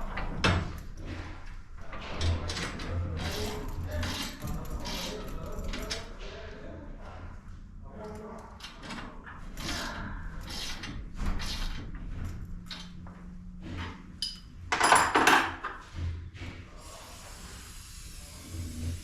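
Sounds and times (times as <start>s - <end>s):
metal tools clanking and rattling: 1.8s - 6.1s, 13.6s - 16.0s.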